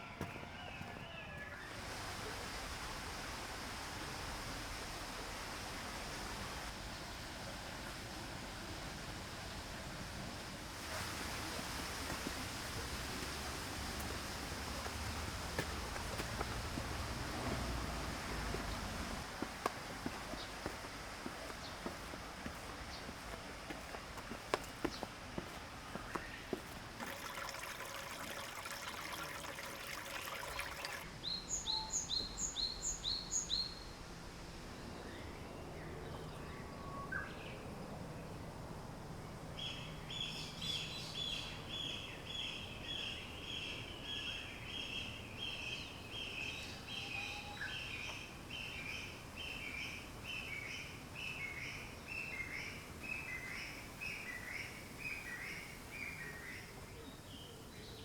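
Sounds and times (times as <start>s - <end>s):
birds calling: 13.3s - 33.7s.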